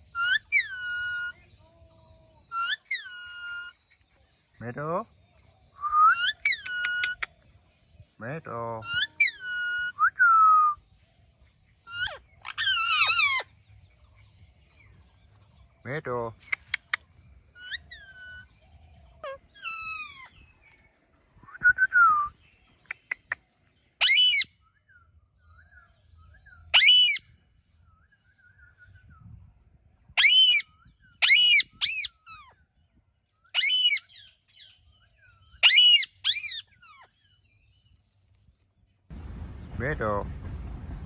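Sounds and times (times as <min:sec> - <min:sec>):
parrot chirps and whistles: 0:00.1 - 0:01.4, 0:02.5 - 0:03.8, 0:05.9 - 0:07.3, 0:08.8 - 0:10.8, 0:11.9 - 0:13.4, 0:17.6 - 0:18.5, 0:19.2 - 0:20.4, 0:24.0 - 0:24.5, 0:26.7 - 0:27.2, 0:30.2 - 0:32.5, 0:33.5 - 0:34.8, 0:35.6 - 0:37.1
parrot squawks: 0:00.2 - 0:01.3, 0:02.5 - 0:03.7, 0:08.8 - 0:10.0, 0:11.9 - 0:13.4, 0:17.6 - 0:18.4, 0:19.2 - 0:20.4, 0:24.0 - 0:24.5, 0:26.7 - 0:27.2, 0:30.2 - 0:30.6, 0:31.2 - 0:32.5, 0:33.5 - 0:34.7, 0:35.6 - 0:37.1.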